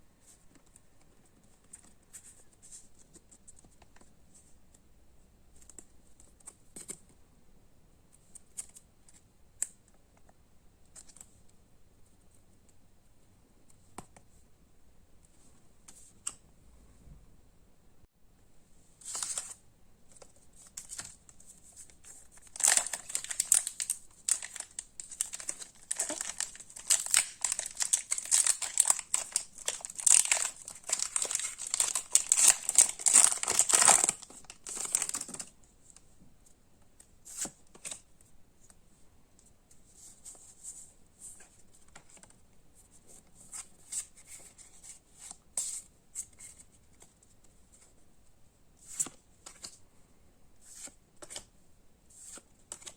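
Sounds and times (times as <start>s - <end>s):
plastic wrapping crinkling: 22.3s - 35.5s.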